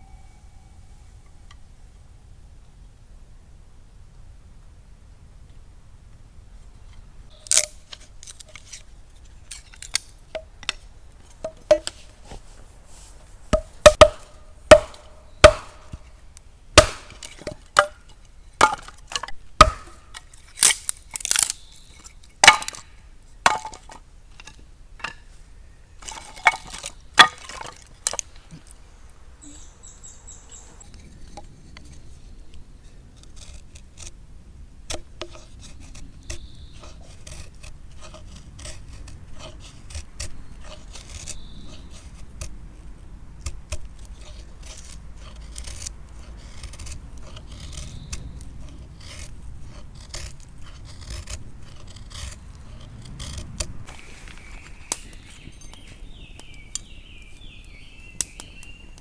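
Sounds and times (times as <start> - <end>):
wood being chopped: 13.5 - 21.6, 22.4 - 24.0, 26.0 - 28.4, 50.0 - 57.2.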